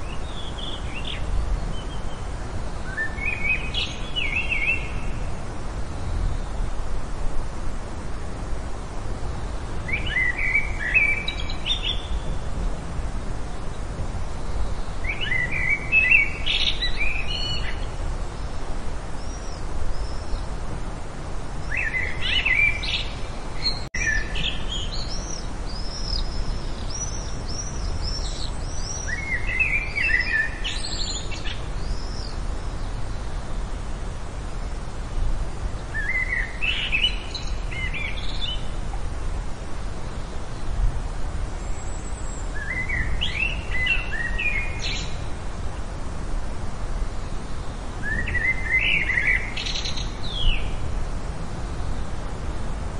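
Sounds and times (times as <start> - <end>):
bird warbling song: 0.0 - 6.6, 9.8 - 12.5, 14.4 - 18.6, 21.6 - 33.4, 35.8 - 39.0, 41.6 - 45.3, 47.2 - 50.8.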